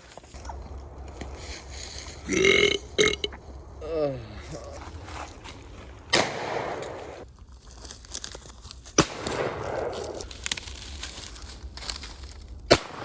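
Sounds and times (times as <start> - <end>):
shotgun shot with echo: 6.1 - 7.2, 9.0 - 10.2, 12.7 - 13.0.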